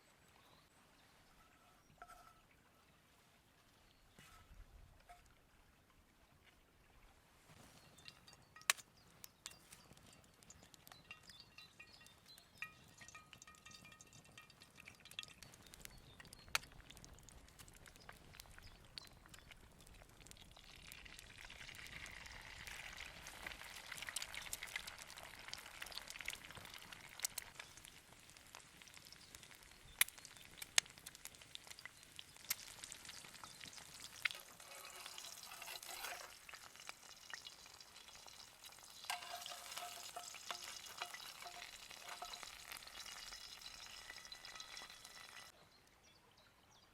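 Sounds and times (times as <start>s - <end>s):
sharp pops and crackles: 7.7s - 45.5s
food sizzling in a pan: 21.4s - 45.5s.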